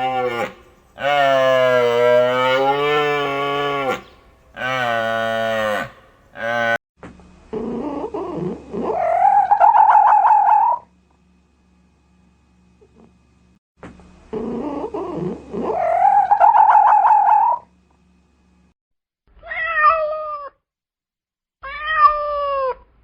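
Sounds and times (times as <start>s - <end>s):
cow mooing: 0.0s - 6.8s
cat yowling: 19.4s - 20.6s, 21.6s - 22.9s.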